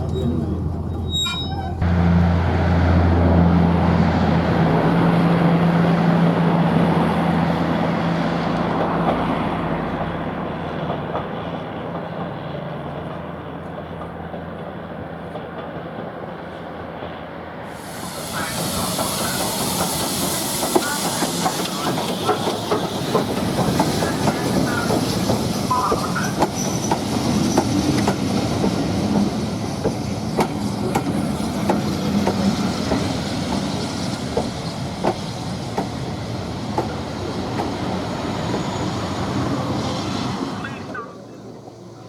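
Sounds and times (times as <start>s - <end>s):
steady train hiss: 16.6s - 40.7s
train wheels clicking over rail joints: 17.8s - 39.5s.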